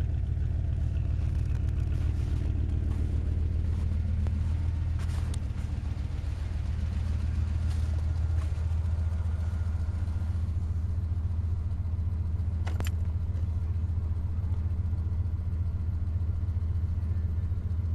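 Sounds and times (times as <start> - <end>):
pickup engine idling: 0.0 - 17.9
sharp click: 12.6 - 13.1.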